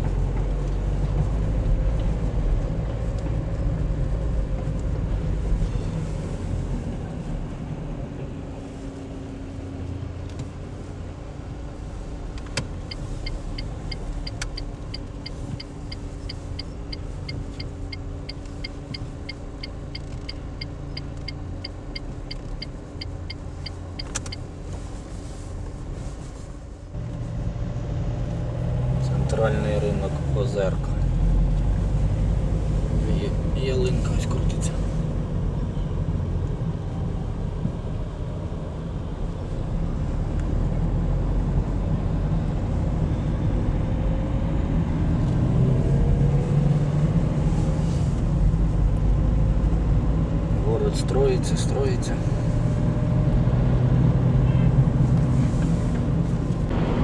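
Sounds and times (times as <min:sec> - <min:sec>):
car road and engine rumble: 0:00.0 - 0:57.0
regular ticking: 0:12.9 - 0:24.4.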